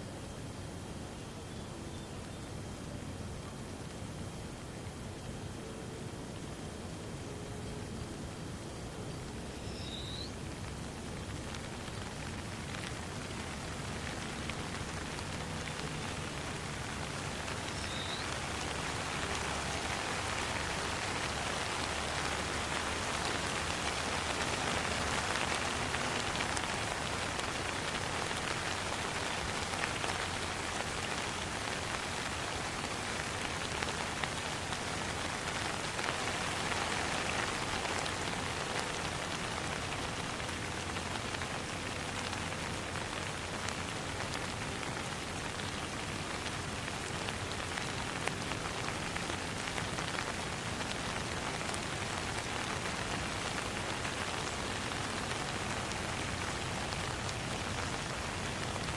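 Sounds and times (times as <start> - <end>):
rain falling on a pond: 0.0 - 58.9.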